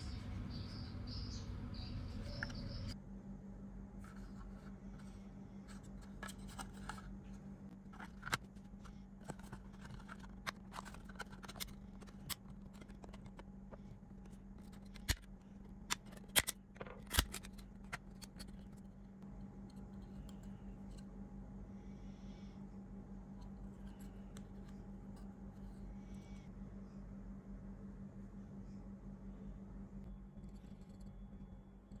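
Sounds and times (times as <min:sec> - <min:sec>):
faint steady hum: 0:00.0 - 0:32.0
plastic casing clicks and scrapes: 0:05.7 - 0:07.1, 0:07.8 - 0:18.9.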